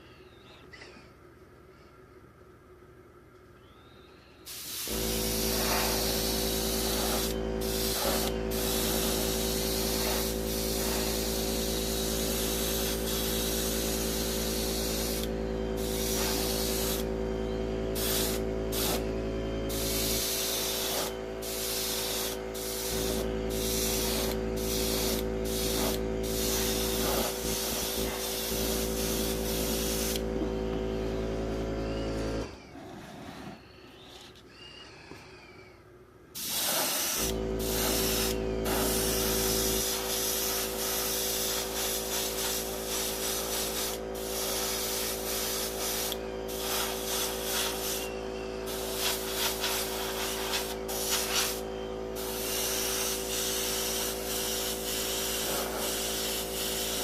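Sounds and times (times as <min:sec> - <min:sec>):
air compressor humming: 0:03.6 - 0:57.0
airbrush spraying hiss: 0:04.5 - 0:17.1, 0:17.9 - 0:19.1, 0:19.7 - 0:30.2, 0:36.4 - 0:57.0.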